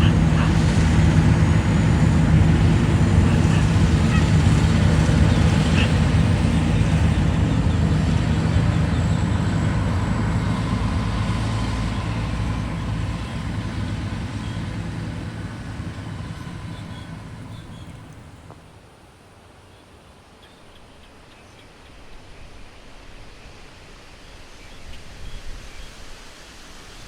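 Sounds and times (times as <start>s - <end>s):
vehicle engine humming: 0.0s - 18.8s.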